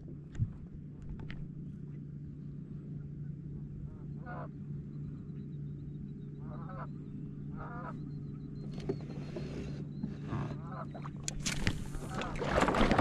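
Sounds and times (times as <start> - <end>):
boat motor drone: 0.0 - 13.0
wavering bird calls: 3.8 - 11.2.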